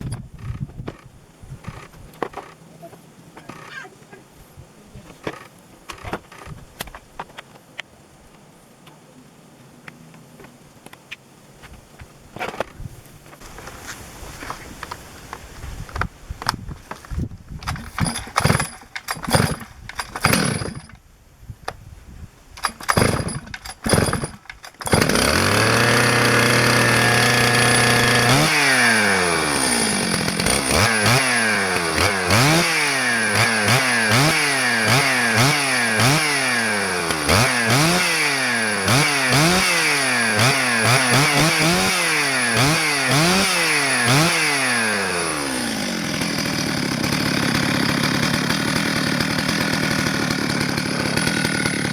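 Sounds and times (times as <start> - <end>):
chainsaw running and revving: 17.8 - 20.9, 22.6 - 51.9.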